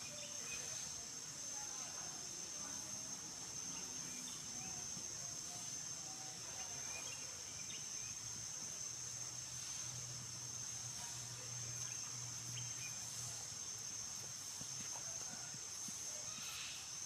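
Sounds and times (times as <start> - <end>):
insects droning: 0.0 - 17.0
faint chirps: 10.6 - 17.0.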